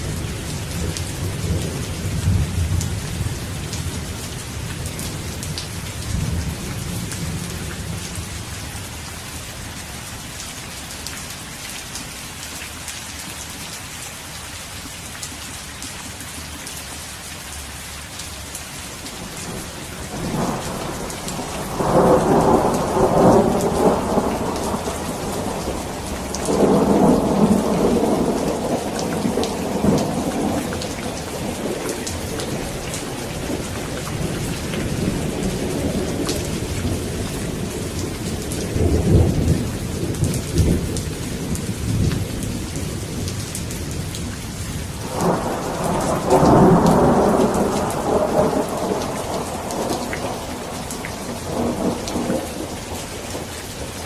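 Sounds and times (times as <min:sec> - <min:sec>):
steady rain: 0:00.0 - 0:54.0
thunder rumbling: 0:19.2 - 0:44.3, 0:44.9 - 0:54.0.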